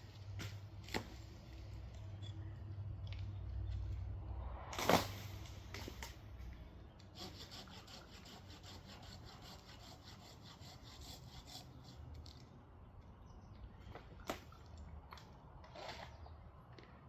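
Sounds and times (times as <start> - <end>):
hand saw cutting wood: 7.0 - 12.1.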